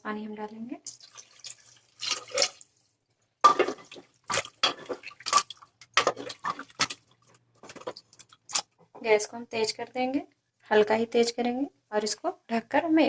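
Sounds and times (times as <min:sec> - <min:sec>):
water splashing into pressure cooker: 0:00.9 - 0:02.7.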